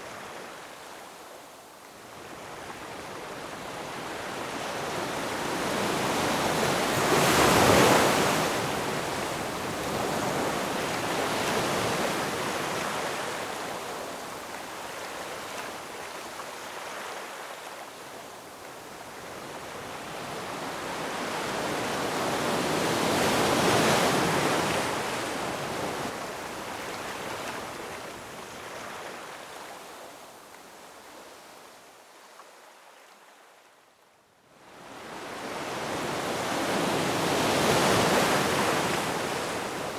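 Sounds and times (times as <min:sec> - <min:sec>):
surf surging and washing back: 0:00.0 - 0:30.4, 0:34.6 - 0:39.9
ocean waves breaking on rocks: 0:05.3 - 0:13.2.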